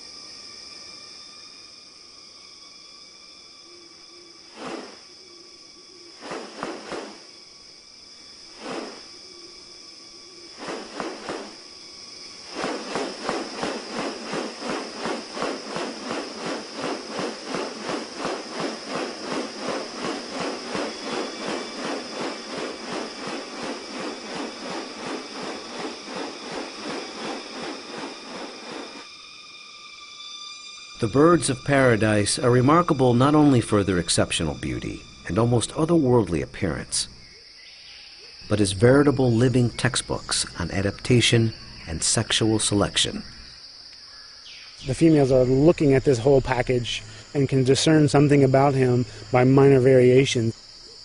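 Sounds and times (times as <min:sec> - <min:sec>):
high insect drone: 0:00.0 - 0:51.0
fast even pulsing: 0:12.4 - 0:29.1.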